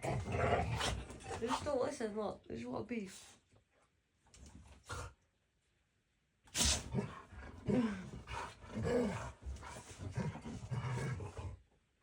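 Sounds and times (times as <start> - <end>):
dogs growling and snarling: 0.0 - 1.8, 6.6 - 11.7.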